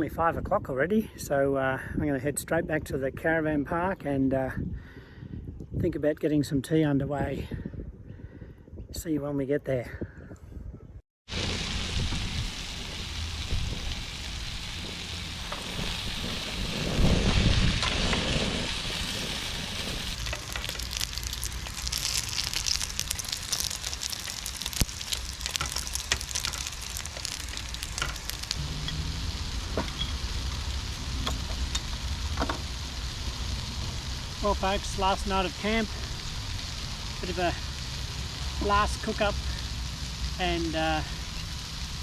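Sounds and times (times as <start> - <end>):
dumplings sizzling in a pan: 11.3 - 17.9, 18.6 - 42.0
low rumble: 11.3 - 38.6.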